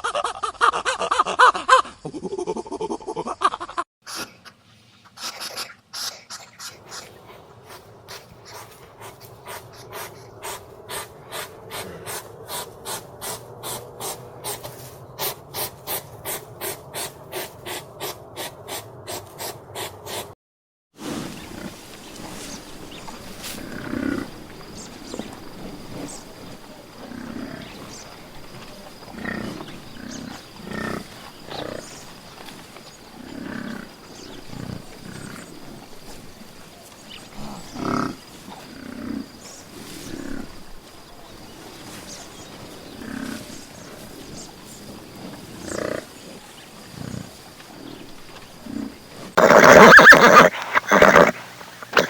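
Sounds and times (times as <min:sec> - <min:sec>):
big cat giving low calls: 0:08.6 - 0:14.7
horse whinny: 0:49.4 - 0:52.0.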